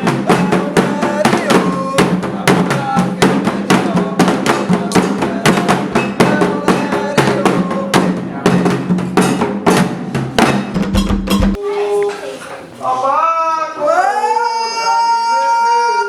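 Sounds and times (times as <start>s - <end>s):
hand drums playing rhythm: 0.0s - 11.8s.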